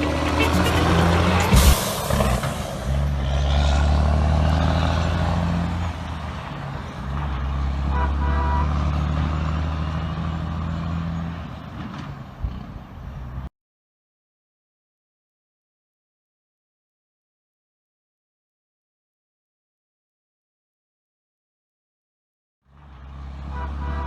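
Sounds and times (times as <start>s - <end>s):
diesel truck engine droning: 0.0s - 13.5s, 22.7s - 24.0s.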